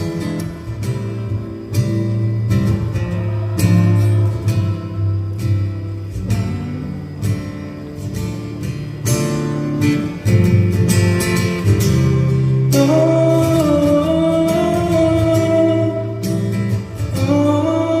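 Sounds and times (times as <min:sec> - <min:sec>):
acoustic guitar strumming: 0:00.0 - 0:18.0
person singing: 0:12.7 - 0:18.0.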